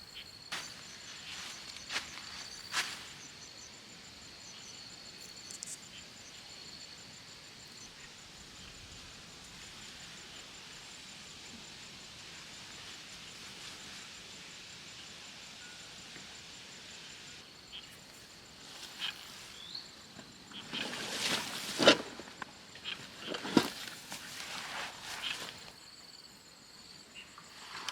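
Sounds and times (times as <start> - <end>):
outdoor hiss: 0.0 - 20.3
insects trilling: 0.0 - 27.9.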